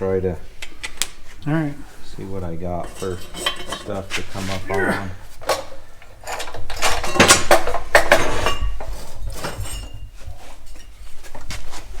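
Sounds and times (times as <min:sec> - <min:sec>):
metal parts clanking: 0:02.7 - 0:04.8, 0:05.4 - 0:11.0.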